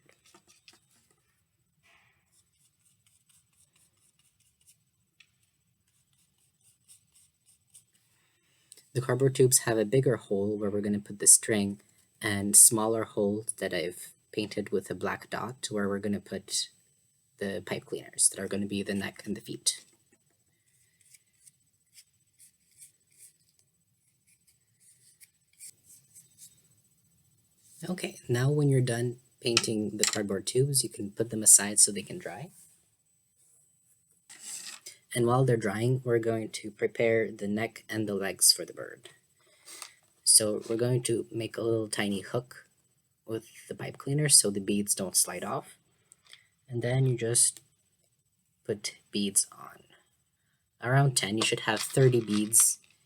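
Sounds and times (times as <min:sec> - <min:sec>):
paintbrush scratching on cardboard: 0:02.3 - 0:08.0, 0:20.7 - 0:26.6.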